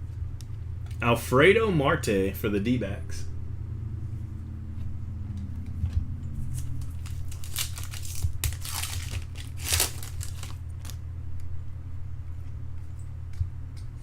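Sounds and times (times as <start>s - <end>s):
foil wrapper tearing and crinkling: 6.6s - 11.0s.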